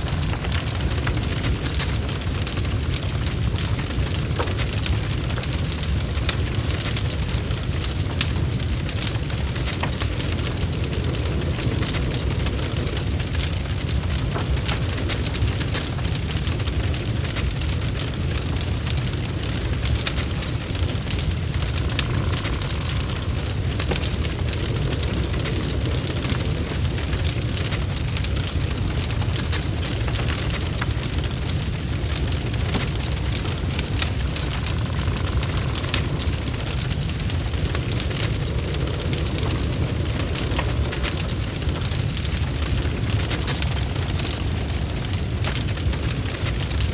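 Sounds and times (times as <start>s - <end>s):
fire crackling and popping: 0.0s - 46.9s.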